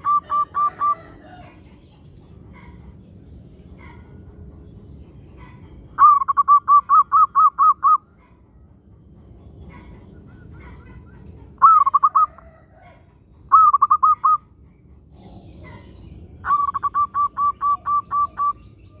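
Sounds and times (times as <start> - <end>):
dove cooing: 0.0 - 1.8, 5.4 - 8.4, 9.7 - 14.5, 15.1 - 19.0.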